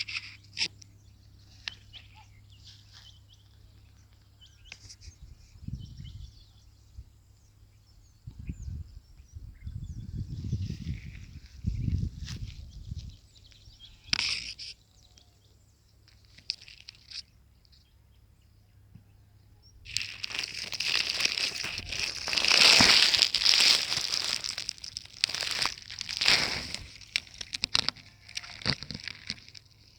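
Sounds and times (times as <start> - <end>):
crinkling rustling crackles: 19.9 - 29.9.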